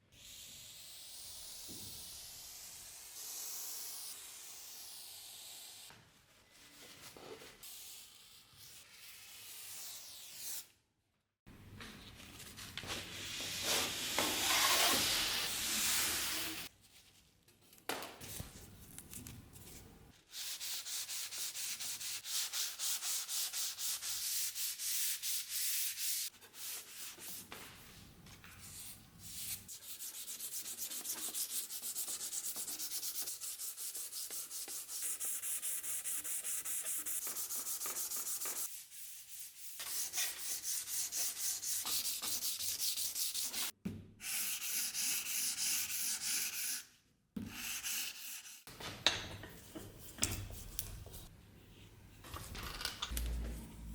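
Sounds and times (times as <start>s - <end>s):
sandpaper scratching on steel: 14.2s - 16.7s, 29.3s - 46.9s, 47.5s - 48.7s.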